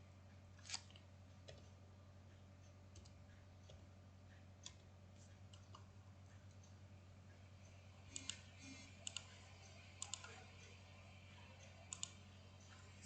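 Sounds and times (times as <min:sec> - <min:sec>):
low steady hum: 0:00.0 - 0:13.0
computer mouse clicks: 0:02.9 - 0:03.8, 0:04.6 - 0:04.9, 0:05.5 - 0:05.9, 0:08.1 - 0:09.4, 0:10.0 - 0:10.4, 0:11.9 - 0:12.2.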